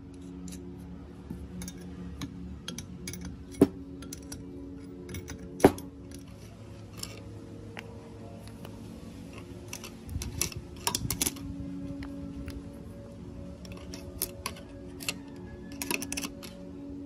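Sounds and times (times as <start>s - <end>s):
small metal clinks and taps: 1.3s - 12.6s, 13.6s - 16.6s
wrench clinking on nut: 1.5s - 7.2s, 9.6s - 11.5s, 13.6s - 16.7s.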